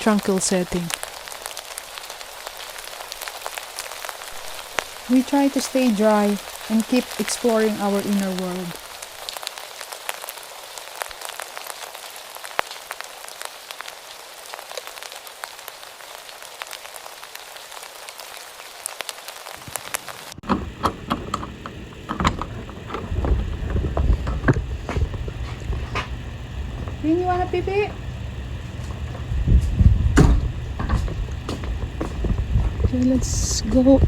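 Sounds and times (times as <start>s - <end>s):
rain pattering: 0.0s - 34.0s
scattered knocks: 20.4s - 26.2s, 29.6s - 32.9s
low rumbling: 20.4s - 34.0s.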